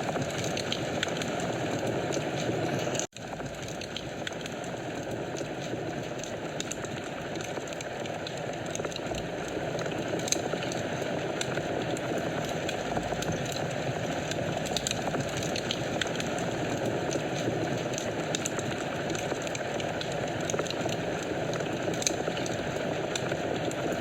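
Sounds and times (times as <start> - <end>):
fire crackles and pops: 0.0 - 24.0
fire flames rushing: 0.0 - 24.0.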